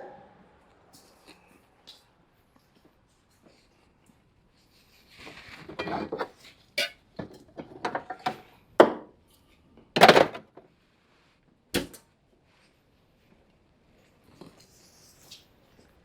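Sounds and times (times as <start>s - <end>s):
metal knocks and clanks: 10.0s - 10.6s.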